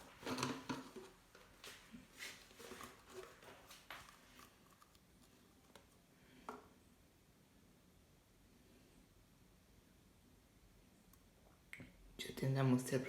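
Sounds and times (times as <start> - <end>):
plastic bottle clicks and rustles: 0.0 - 1.4.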